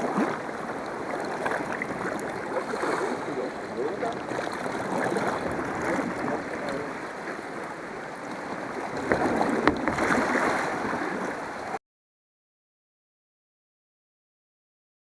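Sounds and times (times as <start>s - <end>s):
water sloshing around kayak: 0.0s - 11.8s.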